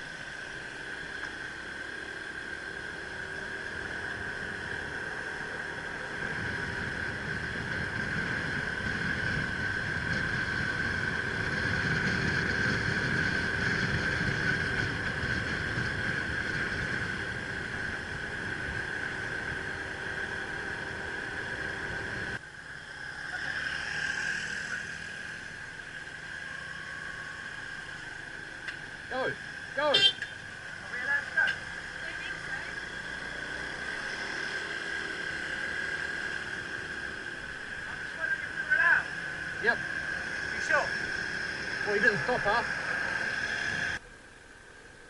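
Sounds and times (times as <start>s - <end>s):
wind noise on microphone: 6.2s - 19.6s
high whine: 24.4s - 45.0s.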